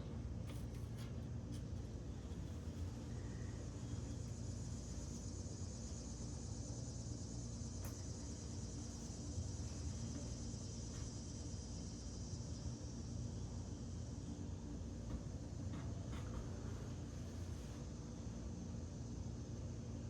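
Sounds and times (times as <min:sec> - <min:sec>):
low constant hum: 0:00.0 - 0:20.0
high-pitched insect chorus: 0:02.9 - 0:14.8.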